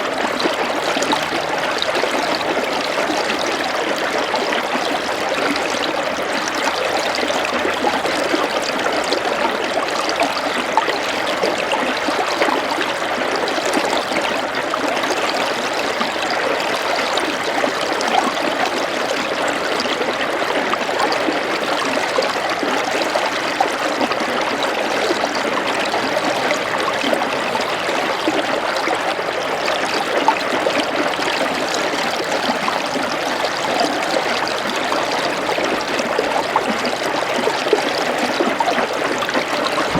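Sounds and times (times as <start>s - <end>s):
small stream trickling: 0.0s - 39.9s.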